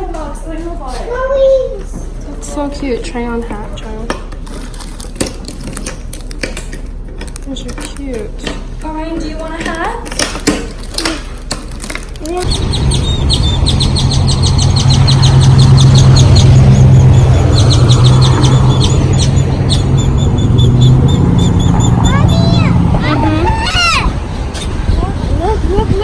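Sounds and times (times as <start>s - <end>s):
birds chirping: 12.3s - 26.0s
steady low rumble: 12.3s - 26.0s.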